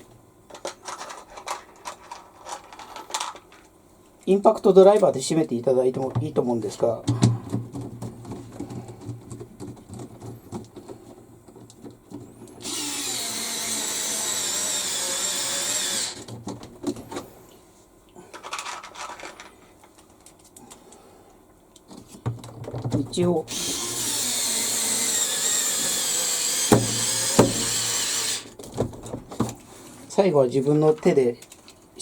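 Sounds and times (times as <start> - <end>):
power screwdriver whining: 12.6 - 16.3, 23.5 - 28.5.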